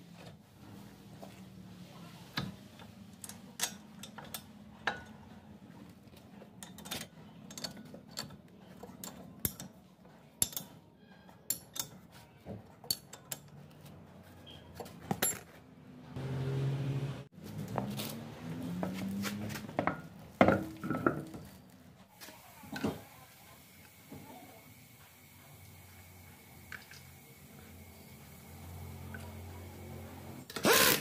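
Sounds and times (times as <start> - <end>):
metallic clicks of hand tools: 9.0 - 9.8.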